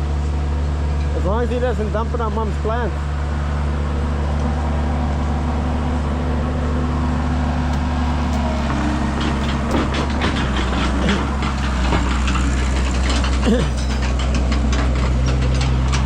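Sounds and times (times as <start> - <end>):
heavy diesel engines running: 0.0 - 16.0
metallic clanking and rattling: 6.3 - 16.0.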